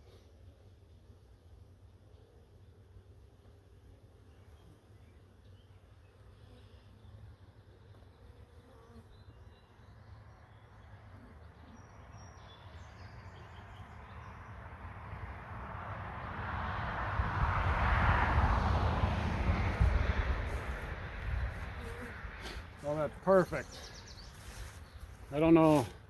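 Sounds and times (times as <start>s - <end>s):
honeybees buzzing: 11.4s - 26.0s.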